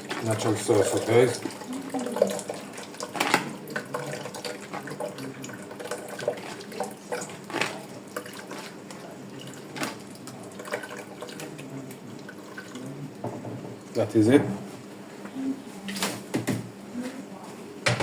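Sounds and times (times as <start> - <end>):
water running and splashing: 0.0 - 13.0.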